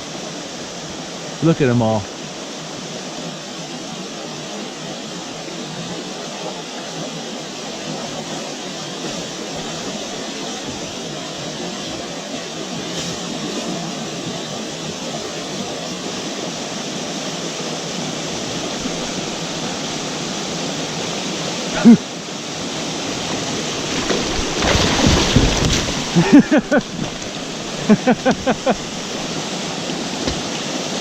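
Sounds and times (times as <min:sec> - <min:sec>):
water pouring over waterfall: 0:17.6 - 0:31.0
loud water splashing: 0:18.0 - 0:31.0.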